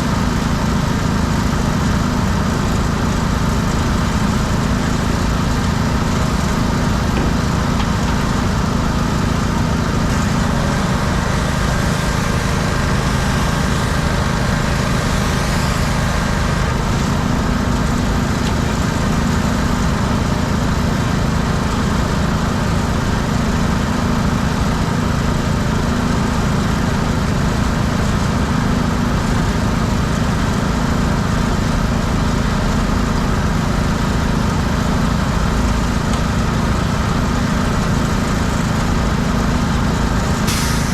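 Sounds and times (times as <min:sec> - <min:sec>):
small engine drone: 0:00.0 - 0:40.9
pressure washer spray hiss: 0:40.5 - 0:40.9.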